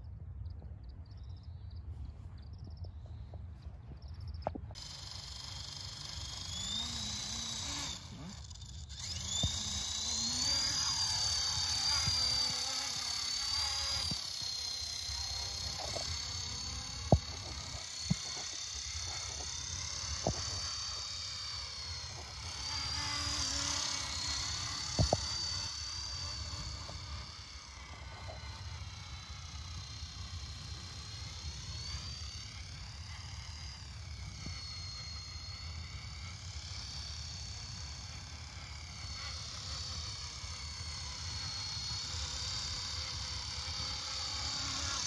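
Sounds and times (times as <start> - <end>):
sharp clicks: 4.4 - 21.1
helicopter motor whining: 4.5 - 45.0.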